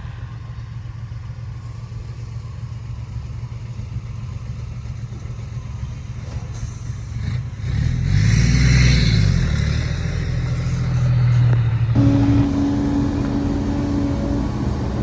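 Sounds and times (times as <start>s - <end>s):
heavy diesel engine revving: 12.0s - 15.0s
steady whine: 12.0s - 15.0s.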